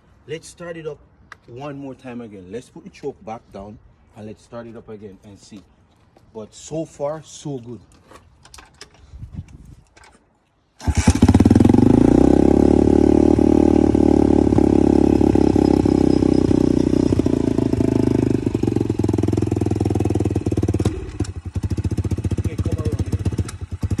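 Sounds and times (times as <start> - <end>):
dirt bike engine idling: 10.8 - 24.0.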